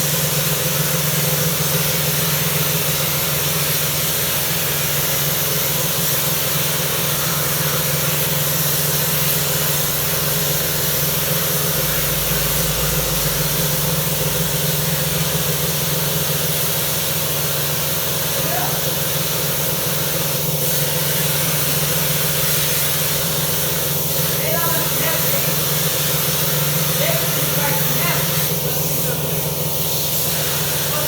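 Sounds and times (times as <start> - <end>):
pressure washer running: 0.0 - 31.0
deeper low hum: 10.6 - 17.0.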